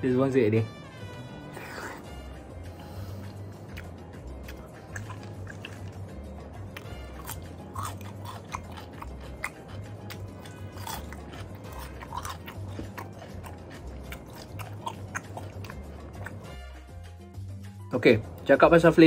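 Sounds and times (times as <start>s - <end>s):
background music with bass: 0.0s - 19.0s
crunching raw vegetable: 3.7s - 16.5s.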